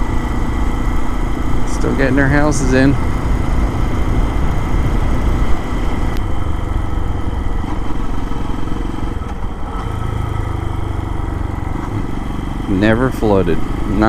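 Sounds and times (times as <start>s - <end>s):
motorcycle engine running: 0.0s - 14.0s
wind noise on microphone: 2.9s - 6.3s.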